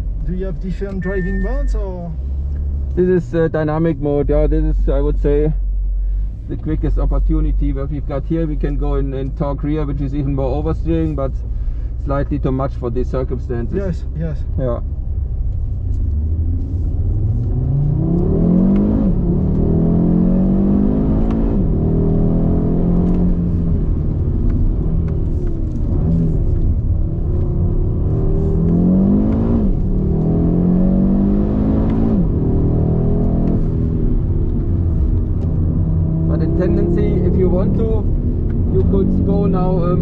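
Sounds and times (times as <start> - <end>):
low road rumble: 0.0 - 40.0
car engine accelerating hard: 12.0 - 40.0.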